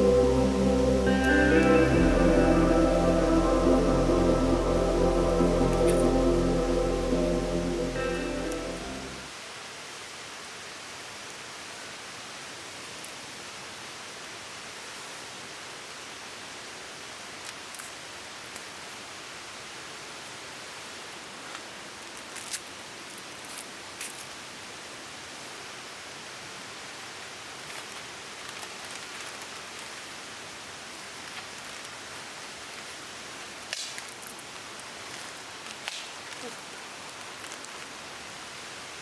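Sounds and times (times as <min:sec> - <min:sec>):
outdoor rushing hiss: 0:00.0 - 0:09.4.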